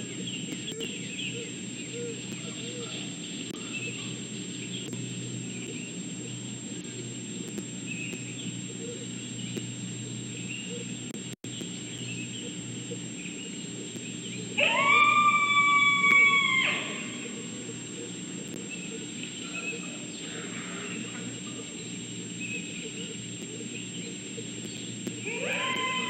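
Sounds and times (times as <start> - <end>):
faint chirps: 0.0 - 26.0
steady background hiss: 0.0 - 26.0
wolf howling: 14.6 - 17.2, 25.2 - 26.0.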